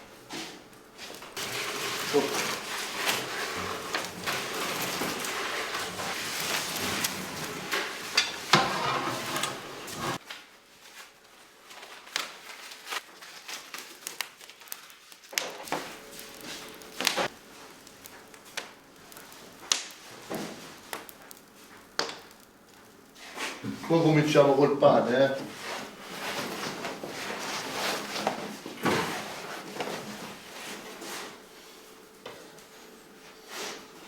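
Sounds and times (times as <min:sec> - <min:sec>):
steady hiss with knocks: 0:00.3 - 0:10.2, 0:15.7 - 0:24.5
clatter of trays and utensils: 0:01.1 - 0:10.2.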